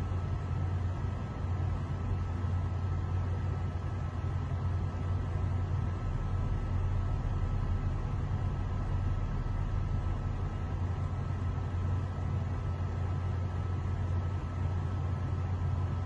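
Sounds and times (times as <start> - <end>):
road noise inside cabin: 0.0 - 16.0
vehicle engine drone: 0.0 - 16.0.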